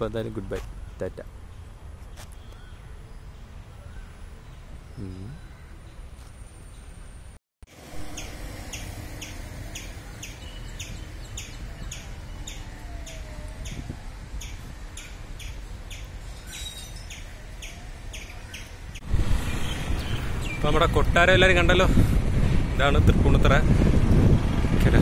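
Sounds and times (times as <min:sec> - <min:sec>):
small bird chirping: 0:08.1 - 0:20.7.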